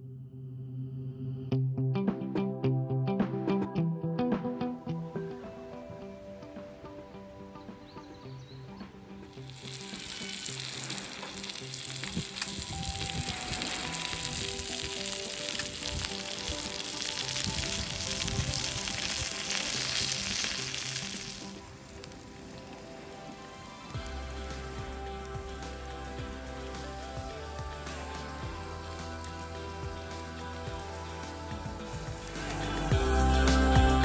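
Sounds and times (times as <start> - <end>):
soft background music: 2.0 - 34.0
food sizzling on a griddle: 9.3 - 33.8.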